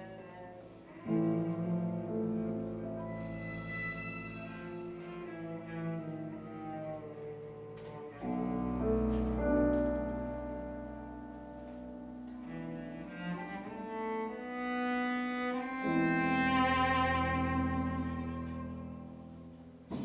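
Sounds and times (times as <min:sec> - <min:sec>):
bowed strings: 0:00.0 - 0:20.0
cello: 0:00.0 - 0:20.0
piano: 0:00.0 - 0:20.0.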